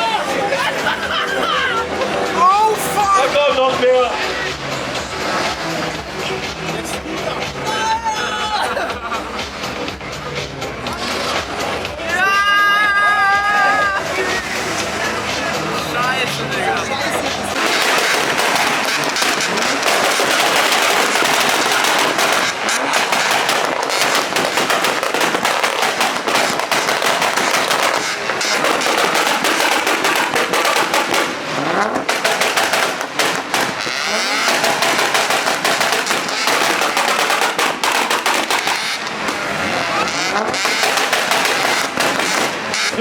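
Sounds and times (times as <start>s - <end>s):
car engine noise: 0.0s - 43.0s
rapid crackling bangs: 17.2s - 43.0s.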